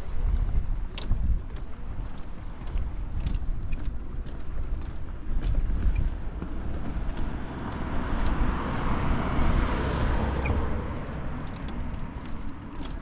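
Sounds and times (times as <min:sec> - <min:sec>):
steady low rumble: 0:00.0 - 0:13.0
car passing by: 0:06.2 - 0:12.5.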